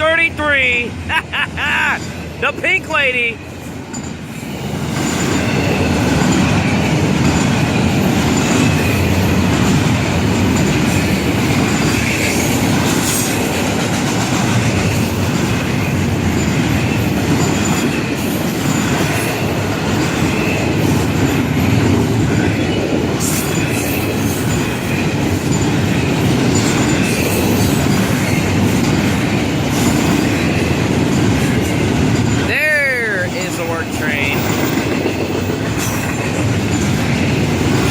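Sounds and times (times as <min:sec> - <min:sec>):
train wheels rumbling on rail: 0:00.0 - 0:37.9.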